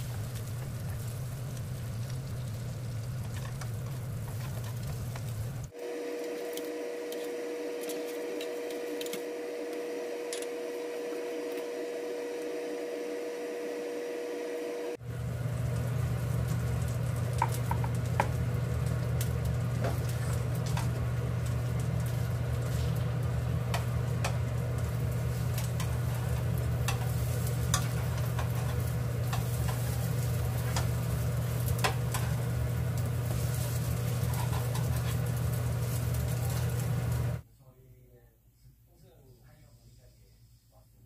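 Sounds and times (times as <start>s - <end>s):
bread sizzling in a pan: 0.0s - 37.4s
low hum: 0.0s - 37.4s
metal tongs clicking on pan: 26.8s - 28.7s.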